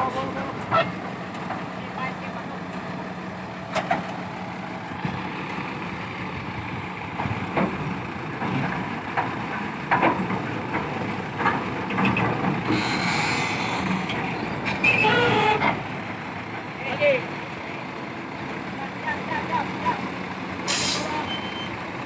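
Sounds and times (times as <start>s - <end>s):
diesel machinery running: 0.0s - 22.0s
metal clanks and knocks: 7.1s - 12.8s
hiss: 12.7s - 13.8s, 20.7s - 21.2s.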